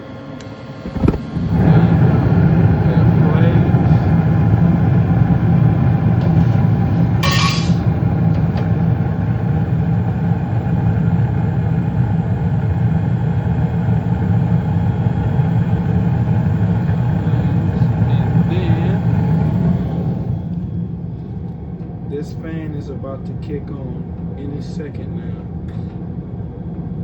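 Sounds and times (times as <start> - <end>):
furnace motor rumble: 0.0 - 27.0
burners lighting: 0.4 - 21.6.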